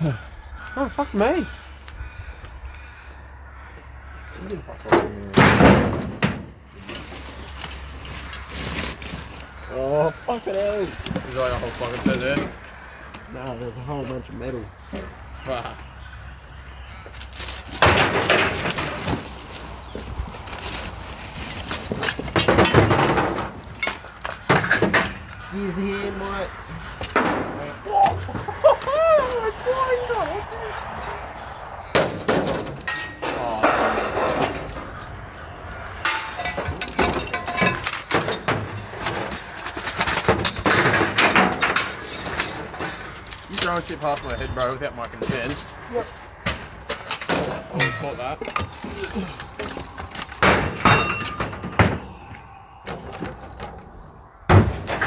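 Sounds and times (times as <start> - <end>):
scrap metal clattering: 20.6 - 25.3, 32.0 - 35.0, 36.0 - 44.2.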